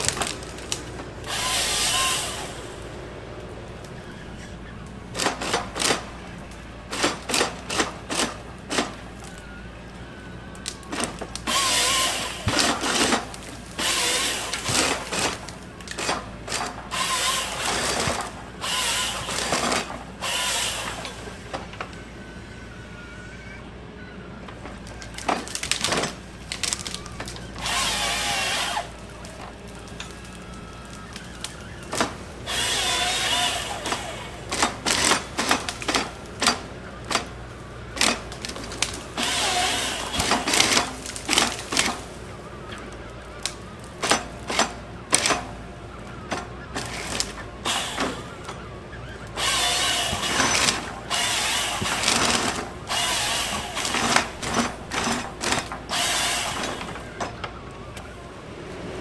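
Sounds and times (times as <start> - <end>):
power tool bursts: 0.0 - 3.1, 5.1 - 9.4, 10.8 - 21.9, 25.0 - 42.3, 46.2 - 57.4.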